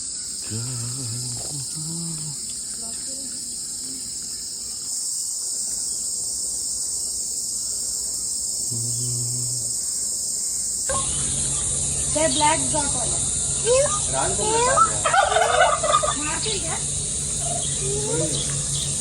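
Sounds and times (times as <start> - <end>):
chorus of crickets and insects: 0.0 - 19.0
low-pitched calls or voices: 0.4 - 2.5, 8.7 - 9.8.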